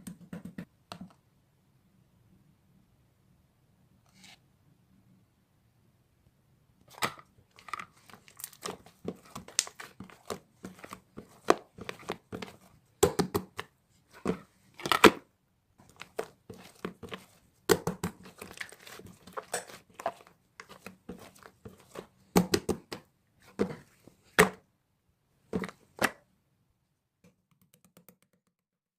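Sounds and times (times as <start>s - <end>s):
crumpling and tearing crackles: 7.5s - 12.6s.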